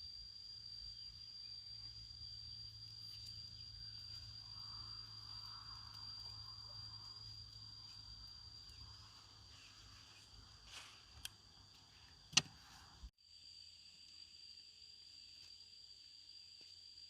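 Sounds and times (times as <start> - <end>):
high-pitched insect drone: 0.0 - 12.1
sharp clicks or knocks: 12.3 - 12.6.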